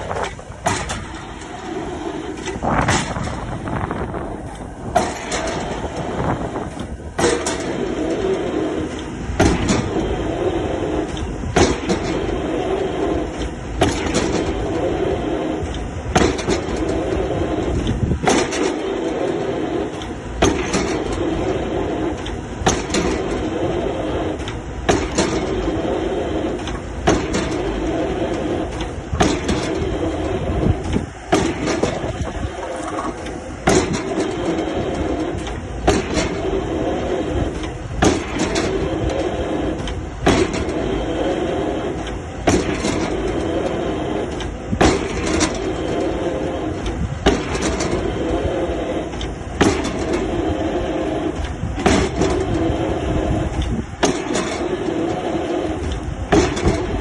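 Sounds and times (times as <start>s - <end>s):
excavator engine running: 0.0s - 57.0s.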